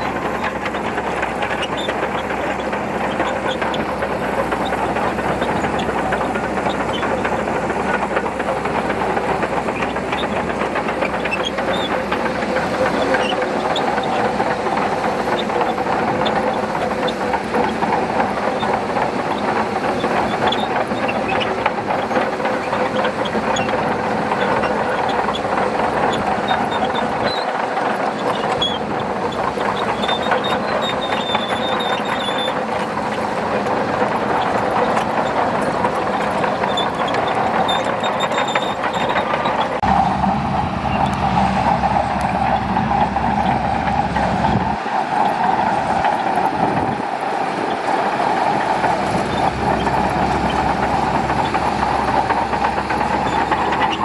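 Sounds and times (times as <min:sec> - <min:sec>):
bulldozer diesel engine under load: 0:00.0 - 0:54.0
steel tracks clattering: 0:00.0 - 0:54.0
deep rumble: 0:39.8 - 0:44.8.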